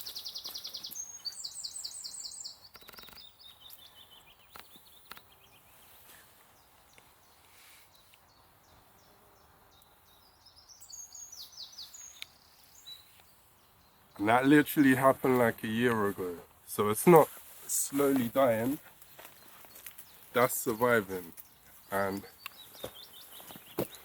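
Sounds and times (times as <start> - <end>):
songbirds singing: 0.0 - 24.0
faint clicks: 2.7 - 3.9, 4.5 - 5.3.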